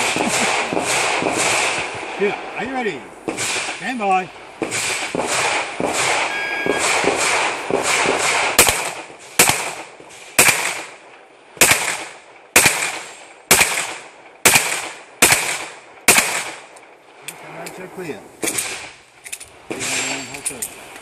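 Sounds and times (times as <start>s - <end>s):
pistol shots with echo: 0.0s - 2.2s, 3.2s - 4.0s, 4.6s - 16.7s.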